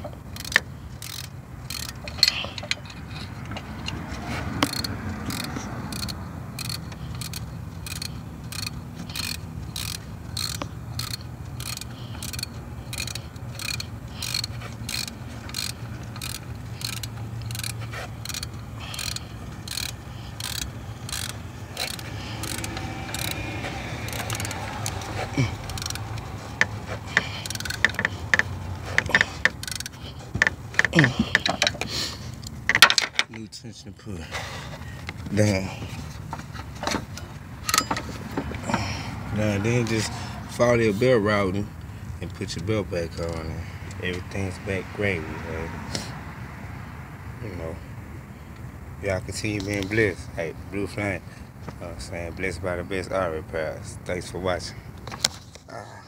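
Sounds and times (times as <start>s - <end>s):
ratchet clicking: 0.0s - 33.1s, 36.8s - 40.1s.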